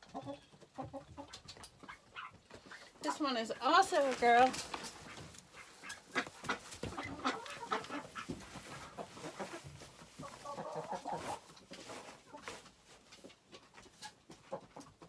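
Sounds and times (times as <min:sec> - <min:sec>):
chickens clucking: 0:00.0 - 0:15.0
rustling and knocking: 0:02.4 - 0:14.1.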